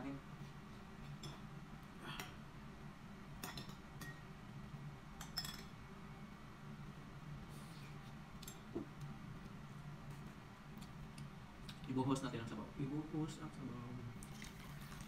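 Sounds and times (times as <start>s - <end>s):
low steady hum: 0.0s - 15.0s
spoon clinking against ceramic bowl: 5.2s - 5.7s.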